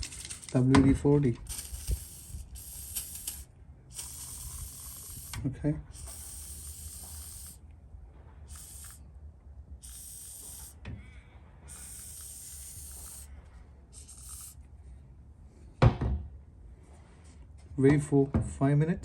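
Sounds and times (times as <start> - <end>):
aerosol can spraying: 1.5 - 7.6, 8.5 - 9.0, 9.8 - 10.8, 11.7 - 13.3, 14.0 - 14.6
loud thump: 15.8 - 16.3.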